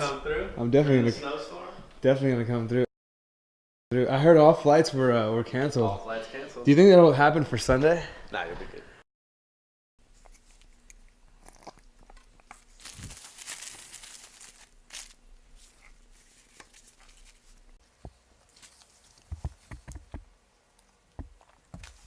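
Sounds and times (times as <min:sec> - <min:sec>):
rustling and crinkling handling noise: 0:11.5 - 0:20.2.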